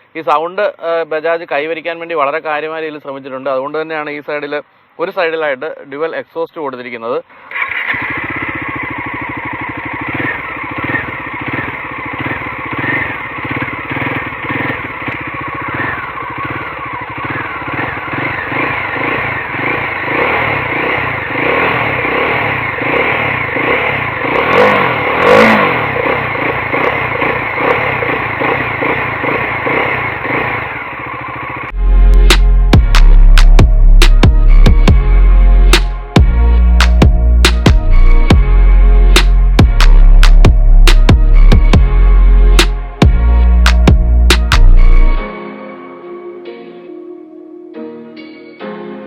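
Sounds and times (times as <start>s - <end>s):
motorcycle engine idling: 7.4s - 31.8s, 39.6s - 45.1s
engine throttle blips: 7.4s - 45.2s.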